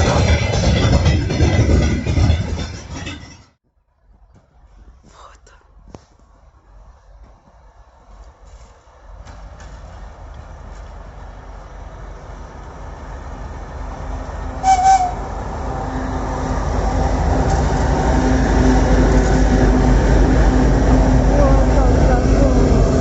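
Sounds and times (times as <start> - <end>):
train approaching: 0.0 - 3.6, 6.2 - 23.0
train horn blast: 14.6 - 15.4.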